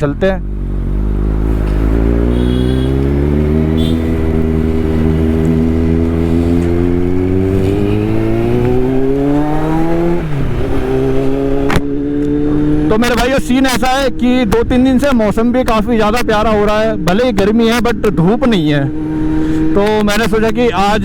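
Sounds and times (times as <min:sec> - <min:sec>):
motorcycle engine revving: 0:00.0 - 0:14.2, 0:18.6 - 0:20.0.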